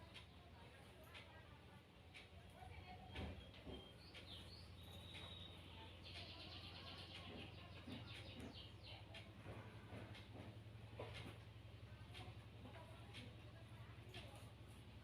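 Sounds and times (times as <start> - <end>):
faint bird chirping: 2.8 - 9.8.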